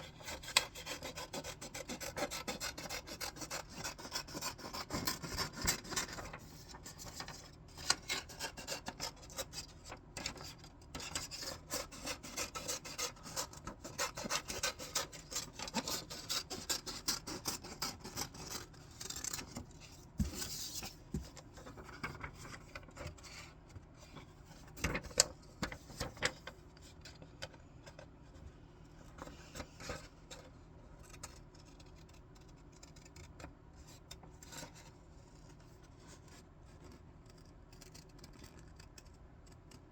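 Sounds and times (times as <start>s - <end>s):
scissors cutting paper: 10.2s - 19.6s.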